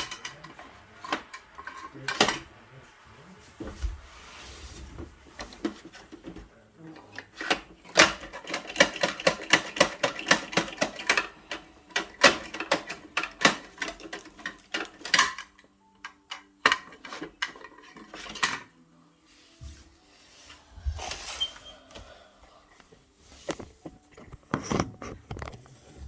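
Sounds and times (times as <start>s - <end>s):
plastic toy pieces clattering: 0.0s - 2.4s, 7.1s - 18.7s.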